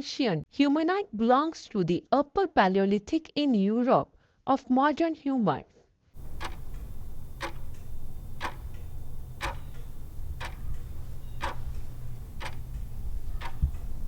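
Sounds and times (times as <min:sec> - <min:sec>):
sharp clock ticks: 0:06.2 - 0:14.0
steady low hum: 0:06.2 - 0:14.0.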